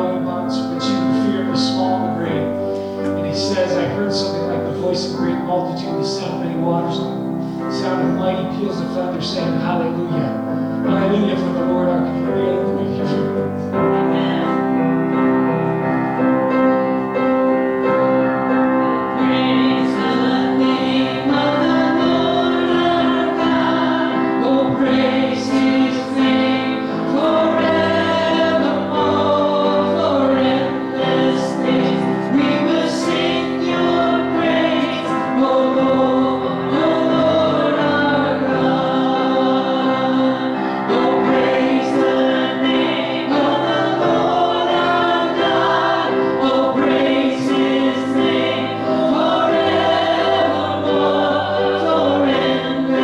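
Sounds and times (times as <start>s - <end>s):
keyboard accompaniment: 0.0s - 53.0s
group of voices singing: 17.9s - 53.0s.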